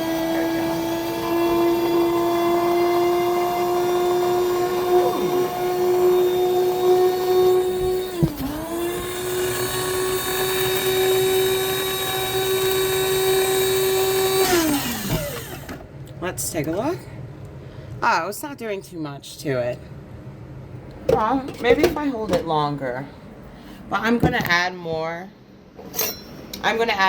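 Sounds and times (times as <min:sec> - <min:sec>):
electric food grinder whining: 0:00.0 - 0:15.8.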